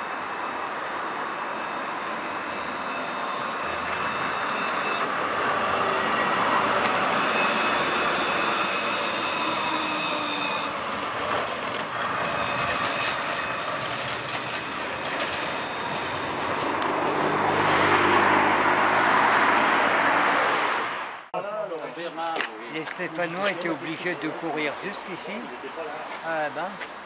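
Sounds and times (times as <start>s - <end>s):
thin high whine: 0.0s - 18.8s
passing vehicle rushing: 1.1s - 21.3s.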